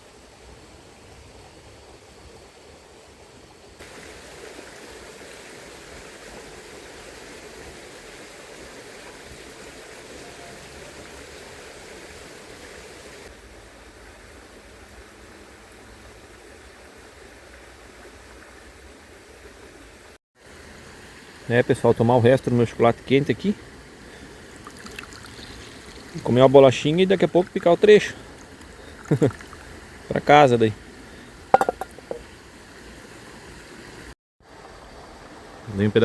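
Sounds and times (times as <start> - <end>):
river rushing over its bed: 0.0 - 18.0.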